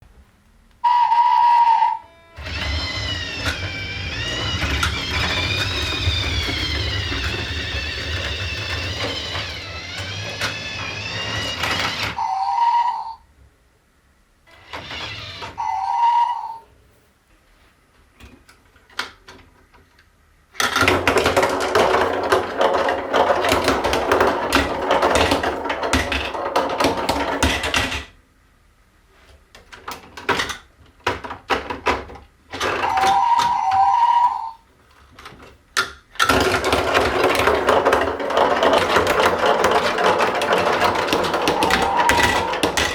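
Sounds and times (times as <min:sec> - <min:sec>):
wavering whistle-like sound: 0:00.8 - 0:02.4, 0:12.2 - 0:13.2, 0:15.6 - 0:16.7, 0:32.9 - 0:34.6
marbles clattering and rattling: 0:20.9 - 0:27.8, 0:36.3 - 0:42.9.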